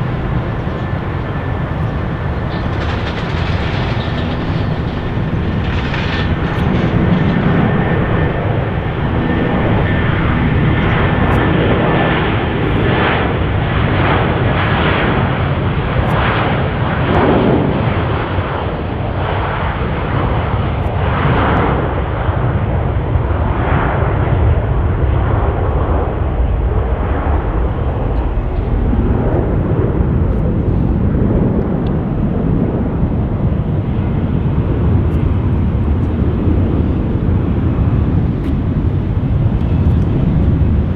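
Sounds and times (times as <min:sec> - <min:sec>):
jet engine rumbling rush: 0:00.0 - 0:16.1, 0:25.5 - 0:40.9.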